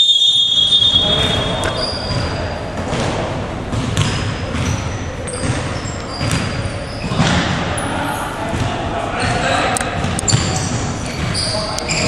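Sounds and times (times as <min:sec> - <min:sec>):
shoe squeaks: 0:00.0 - 0:02.7, 0:04.0 - 0:08.4, 0:10.2 - 0:12.0
hubbub of players: 0:00.0 - 0:12.0
basketball bouncing: 0:00.8 - 0:07.7, 0:08.5 - 0:12.0.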